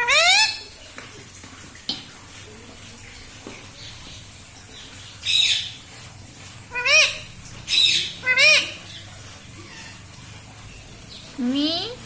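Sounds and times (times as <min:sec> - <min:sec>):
parrot squawk: 0:00.0 - 0:00.6, 0:06.7 - 0:09.0, 0:09.6 - 0:10.1.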